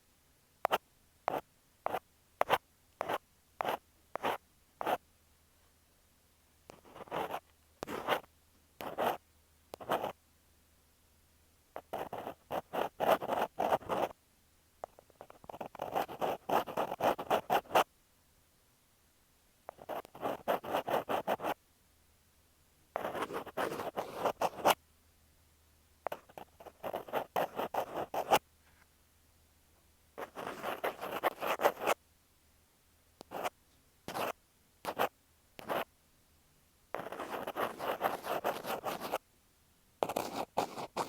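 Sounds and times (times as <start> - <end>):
ear pick scratching a microphone: 23.0 - 24.8, 30.2 - 32.0, 34.1 - 34.3, 34.9 - 35.8, 37.0 - 39.2, 40.0 - 41.0.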